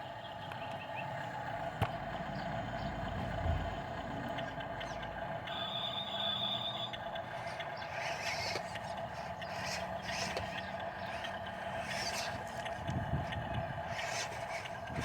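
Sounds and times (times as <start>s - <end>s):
heavy diesel machinery running: 0.0s - 15.0s
gravel scraping and grating: 7.2s - 15.0s.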